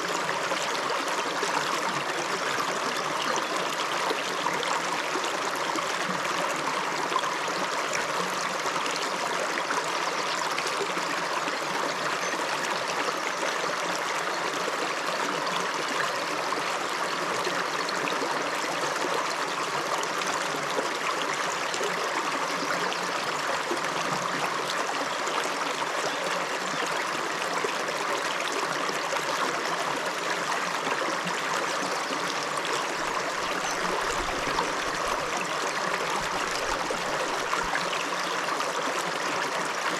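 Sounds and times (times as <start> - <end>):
river flowing over rocks: 23.3 - 39.9.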